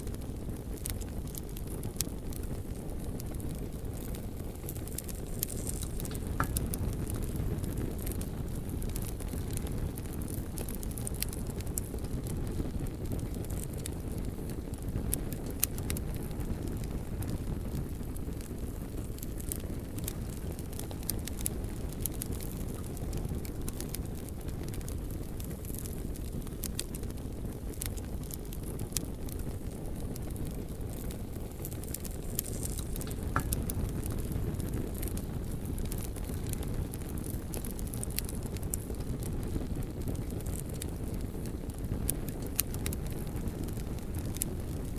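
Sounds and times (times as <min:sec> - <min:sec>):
fire crackling and popping: 0:00.0 - 0:44.9
wood fire burning: 0:00.0 - 0:44.9.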